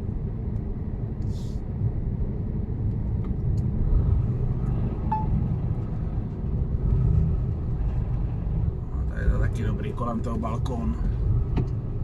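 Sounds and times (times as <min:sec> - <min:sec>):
road noise: 0:00.0 - 0:12.0
truck diesel engine rumble: 0:03.7 - 0:12.0.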